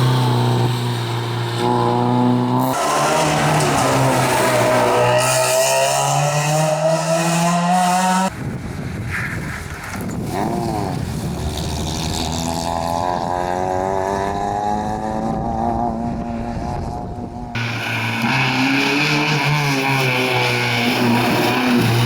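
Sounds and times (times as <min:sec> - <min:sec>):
rally car engine revving: 0:00.0 - 0:08.3, 0:10.2 - 0:22.0.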